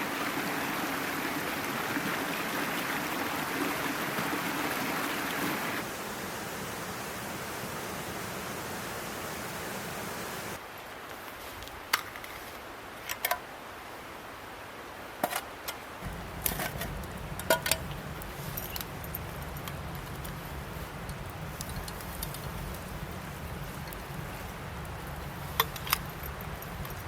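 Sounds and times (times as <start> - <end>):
steady hiss: 5.5 - 11.9, 12.5 - 27.0
metal camp gear clinking: 16.0 - 27.0.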